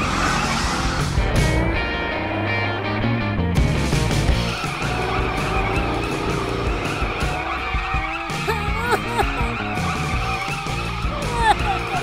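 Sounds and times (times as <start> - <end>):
background music: 0.0 - 12.0
cartoon car engines: 4.3 - 12.0.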